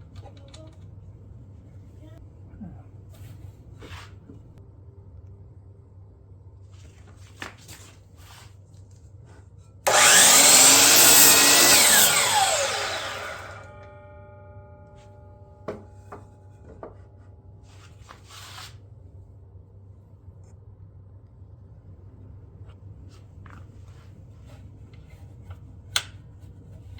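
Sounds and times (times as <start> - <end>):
miter saw motor running: 9.9 - 13.8.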